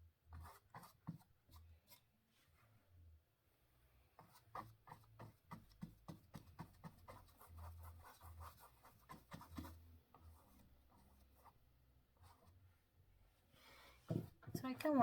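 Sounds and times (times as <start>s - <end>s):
paintbrush scratching canvas: 0.3s - 2.0s, 4.2s - 11.6s.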